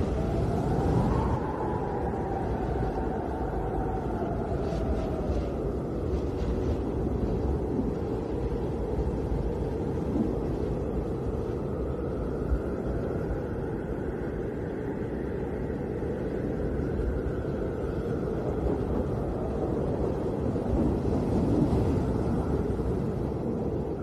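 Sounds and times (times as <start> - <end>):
snowstorm wind rumble: 0.0 - 24.0.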